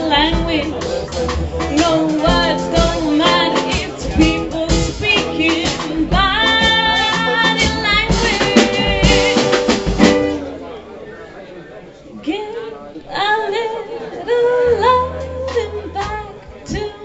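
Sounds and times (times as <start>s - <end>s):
band music with drums: 0.0s - 10.8s, 14.8s - 17.0s.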